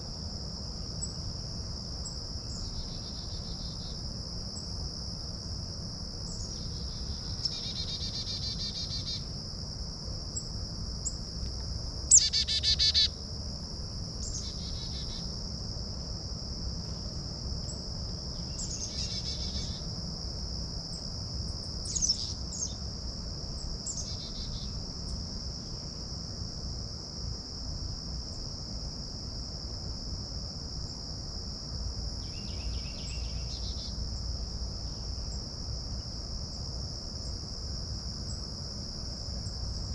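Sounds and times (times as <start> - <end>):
high-pitched insect chorus: 0.0 - 39.9
songbirds calling: 12.1 - 13.1.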